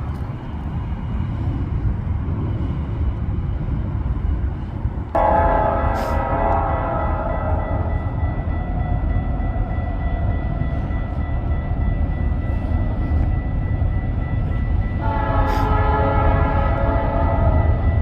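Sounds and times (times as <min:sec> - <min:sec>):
train rumbling by: 0:00.0 - 0:18.0
locomotive horn chord: 0:05.2 - 0:07.9, 0:15.0 - 0:17.8.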